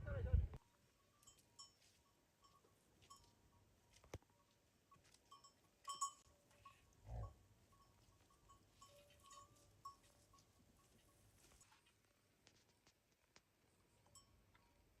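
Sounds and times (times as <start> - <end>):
faint farm animal calls: 6.5 - 11.8.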